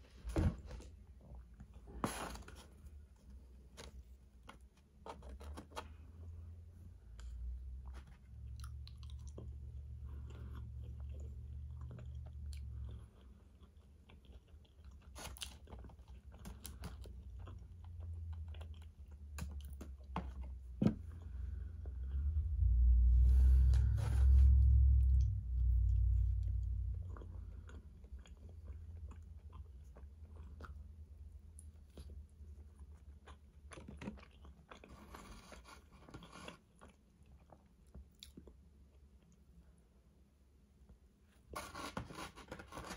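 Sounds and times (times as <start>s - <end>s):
chewing and crunching food: 0.8s - 40.1s, 41.0s - 42.9s
low rumble: 20.9s - 29.6s.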